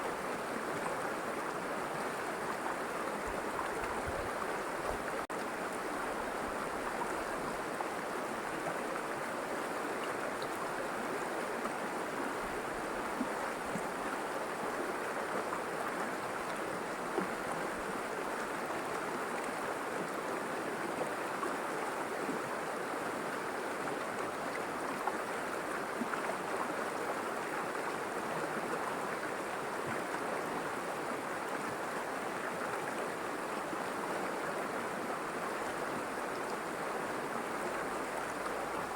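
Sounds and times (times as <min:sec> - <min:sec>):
river water rushing over rocks: 0:00.1 - 0:38.9.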